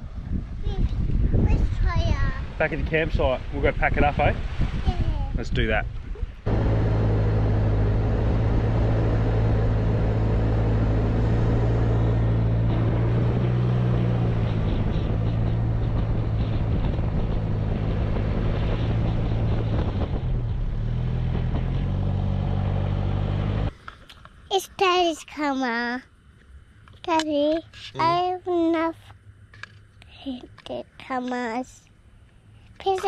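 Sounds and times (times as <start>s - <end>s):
wind and tyre noise: 0.0s - 24.5s
diesel engine running: 6.5s - 23.7s.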